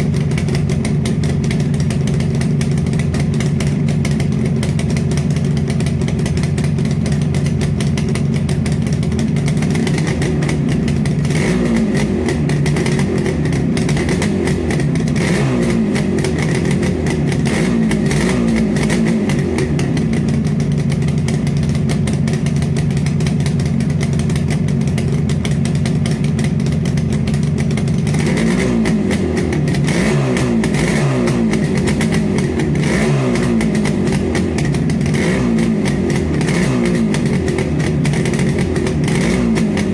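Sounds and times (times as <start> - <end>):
motorcycle engine idling: 0.0 - 39.9
motorcycle engine revving: 0.0 - 39.9.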